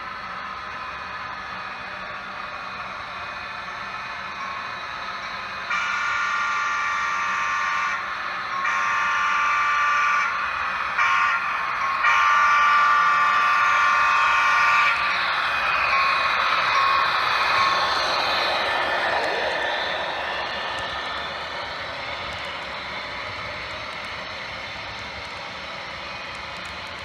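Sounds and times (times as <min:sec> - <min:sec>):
model locomotive running noise: 0:00.0 - 0:27.0
model locomotive horn blasts: 0:05.7 - 0:15.1.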